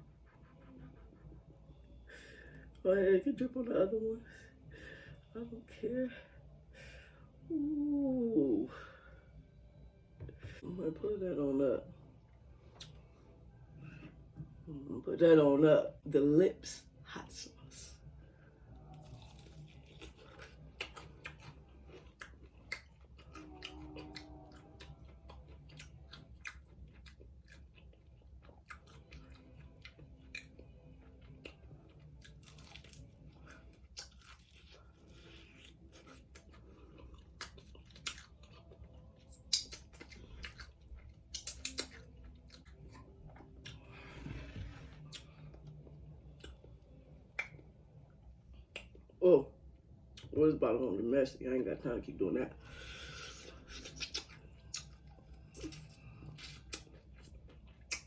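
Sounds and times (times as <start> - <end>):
person chewing crunchy food: 18.8 - 47.6, 52.8 - 58.0
wet mouth clicks: 53.8 - 55.0, 57.8 - 58.0.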